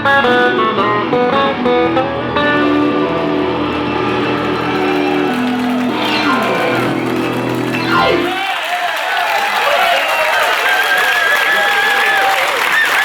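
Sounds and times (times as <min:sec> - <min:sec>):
blues guitar with pitch slides: 0:00.0 - 0:08.4.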